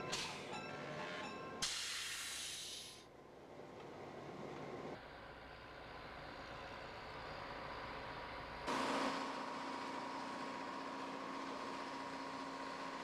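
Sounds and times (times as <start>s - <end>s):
diesel locomotive engine running: 0.0s - 13.0s.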